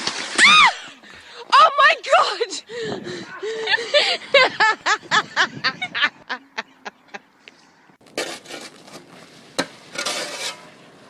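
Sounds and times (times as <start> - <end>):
person laughing: 3.2 - 7.3
scraping or rustling: 8.0 - 11.0.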